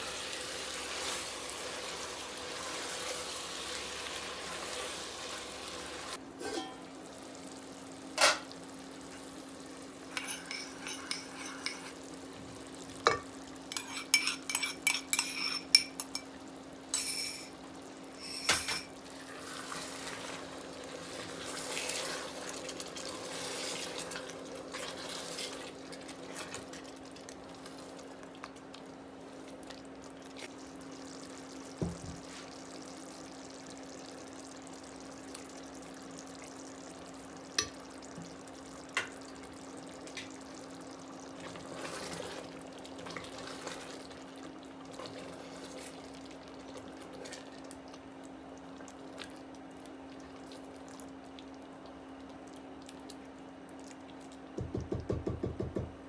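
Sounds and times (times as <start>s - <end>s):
dishes clinking and clattering: 6.4s - 6.9s, 10.1s - 12.0s, 13.0s - 16.3s, 16.9s - 17.6s, 18.2s - 19.0s.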